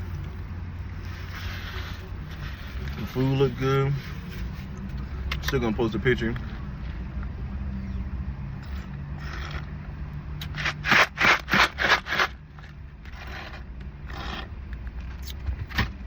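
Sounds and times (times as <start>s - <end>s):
straw slurping from cup: 8.6s - 9.7s.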